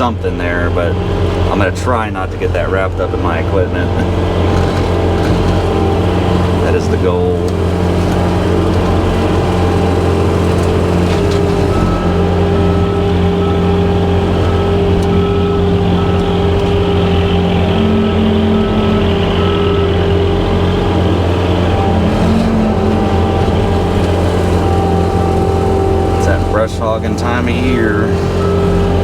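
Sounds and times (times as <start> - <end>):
brush hog cutting grass: 0.0 - 29.0
diesel engine running under load: 0.0 - 29.0
short beeping tone: 8.6 - 29.0.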